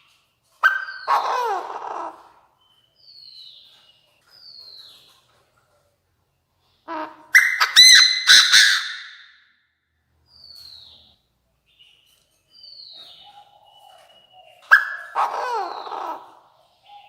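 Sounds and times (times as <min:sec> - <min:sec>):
bird harsh call: 0:00.6 - 0:02.4, 0:13.0 - 0:17.0.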